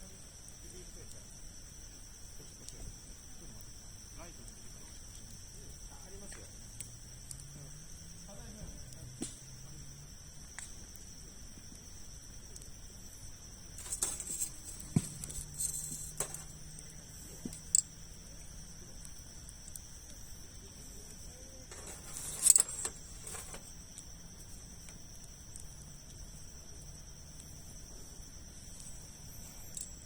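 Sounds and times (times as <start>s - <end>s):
wood campfire crackling: 0.1s - 30.0s
steady high-pitched tone: 13.0s - 30.0s.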